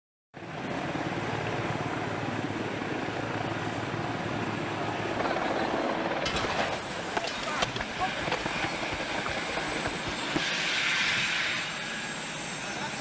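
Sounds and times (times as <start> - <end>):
helicopter rotor and turbine: 0.4 - 13.0.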